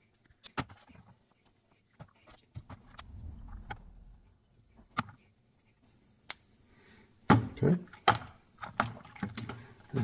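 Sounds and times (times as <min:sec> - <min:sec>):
low rubbing sound: 0:02.7 - 0:05.0.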